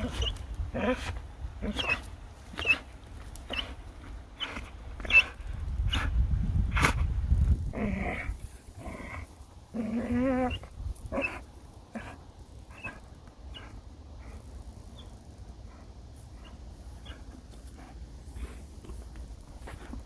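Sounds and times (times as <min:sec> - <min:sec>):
dog growling and whining: 0:00.0 - 0:02.9, 0:03.5 - 0:03.8, 0:04.4 - 0:05.4, 0:07.7 - 0:14.3
short squeaks: 0:02.6 - 0:02.9, 0:04.4 - 0:05.4.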